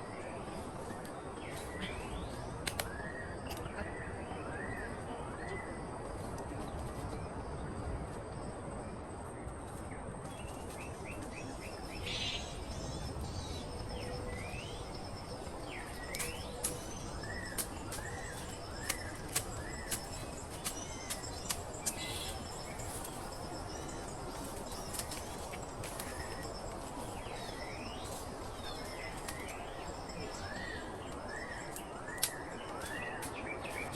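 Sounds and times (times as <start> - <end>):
outdoor background noise: 0.0 - 33.9
birds chirping: 10.3 - 33.9.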